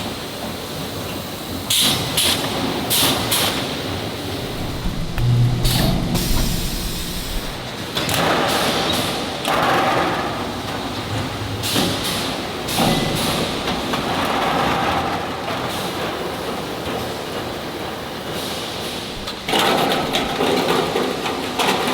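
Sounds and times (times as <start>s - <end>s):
knocks and thuds: 4.4s - 7.7s.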